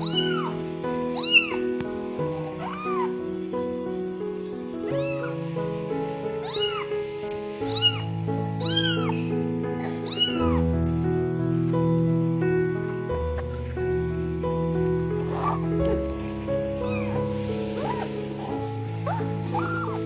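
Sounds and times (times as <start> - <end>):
kitten meowing: 0.0 - 0.6, 1.2 - 1.6, 2.6 - 3.1, 4.9 - 5.3, 6.4 - 7.0, 7.6 - 10.7, 15.3 - 15.6, 16.8 - 20.0.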